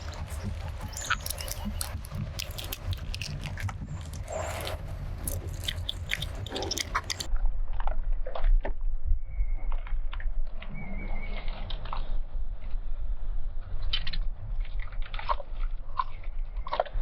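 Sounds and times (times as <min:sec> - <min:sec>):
wet chewing of candy: 0:00.0 - 0:07.9
low rumble: 0:00.0 - 0:15.0.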